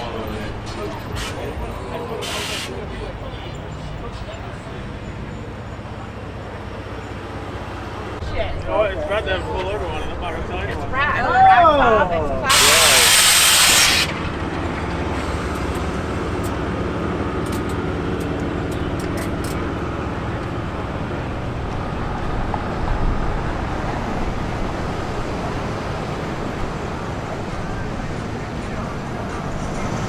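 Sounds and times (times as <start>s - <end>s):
loud hiss: 2.2s - 2.8s, 12.5s - 16.6s
vehicle engine rumbling: 12.4s - 30.0s.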